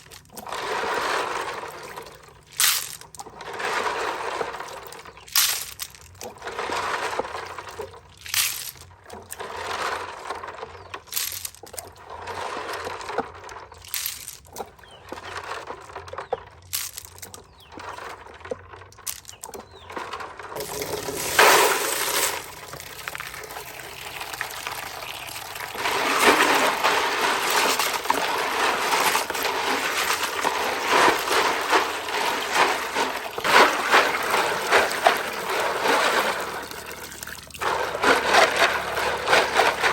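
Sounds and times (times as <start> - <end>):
water pouring: 20.6 - 39.9
water splashing: 20.6 - 39.9.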